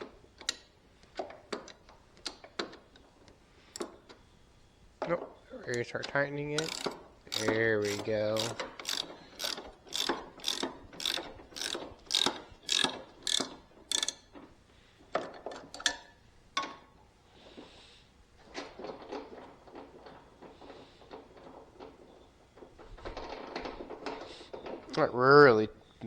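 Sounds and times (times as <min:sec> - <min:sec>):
tool handling clicks and knocks: 0:00.0 - 0:04.2, 0:05.0 - 0:16.9
socket ratchet clicking: 0:06.6 - 0:14.3.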